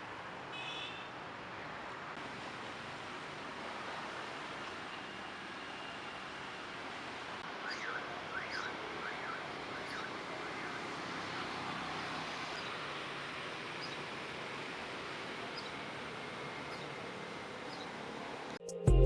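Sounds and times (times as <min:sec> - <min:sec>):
steady outdoor hiss: 0:00.0 - 0:18.8.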